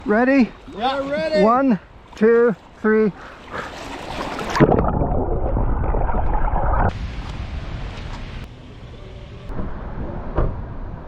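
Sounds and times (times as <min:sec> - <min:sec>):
open water noise: 0:00.0 - 0:09.8
underwater bubbling and churning: 0:03.2 - 0:07.5
splash: 0:03.3 - 0:08.2.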